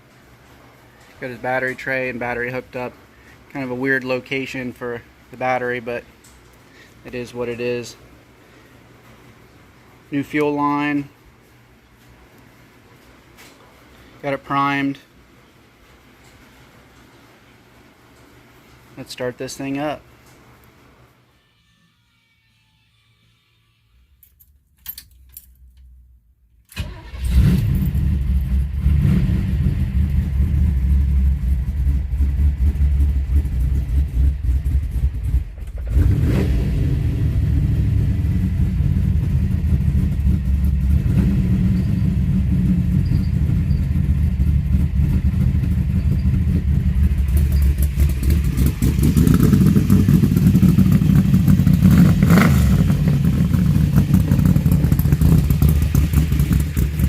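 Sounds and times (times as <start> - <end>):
car engine starting and running: 26.7 - 57.0.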